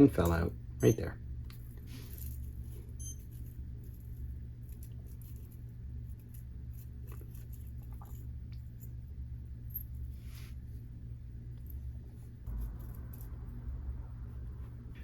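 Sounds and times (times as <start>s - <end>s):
low electrical hum: 0.0s - 15.0s
faint clicks of small parts: 1.4s - 9.0s.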